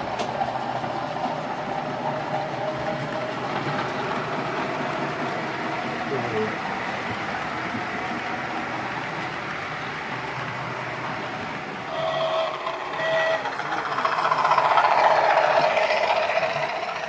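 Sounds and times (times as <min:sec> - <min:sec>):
model trains running: 0:00.0 - 0:17.0
short steady tones: 0:11.9 - 0:14.6.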